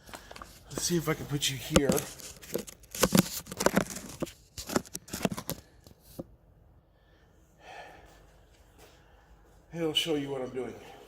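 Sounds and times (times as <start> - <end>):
camera handling noise: 1.7 - 6.2.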